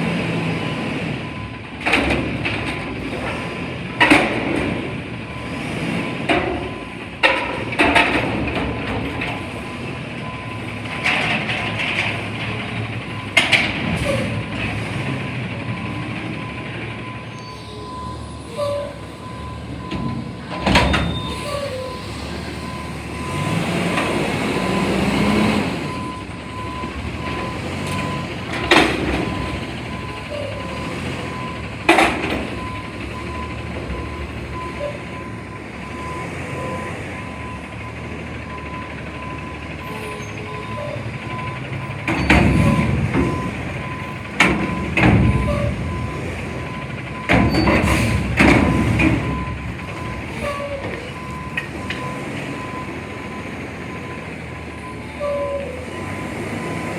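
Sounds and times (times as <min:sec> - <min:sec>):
garbage truck engine running: 0:00.0 - 0:56.9
metal clanks and bangs: 0:00.8 - 0:17.2, 0:18.6 - 0:36.1, 0:40.4 - 0:54.2
backup alarm beeping: 0:15.6 - 0:56.9.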